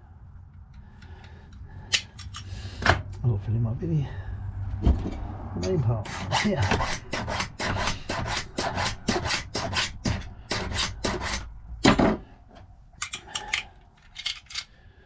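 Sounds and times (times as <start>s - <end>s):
file rasping on metal: 6.0s - 11.5s.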